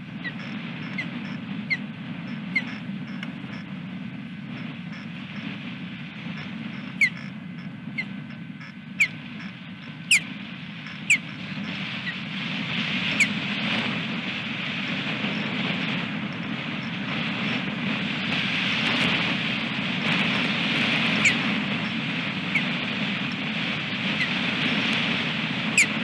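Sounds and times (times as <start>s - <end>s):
osprey chirps: 0.0s - 3.7s, 4.4s - 5.6s, 6.2s - 12.3s, 13.0s - 13.4s, 20.9s - 26.0s
wind storm roaring: 0.0s - 26.0s.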